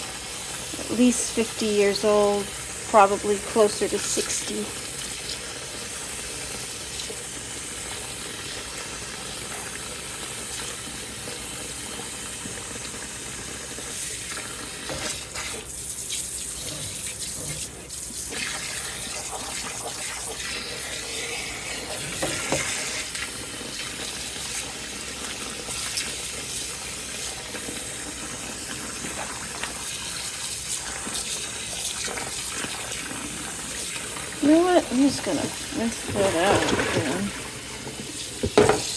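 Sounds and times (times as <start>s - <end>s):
tap water running into basin: 0.0s - 38.9s
water splashes: 34.4s - 38.9s.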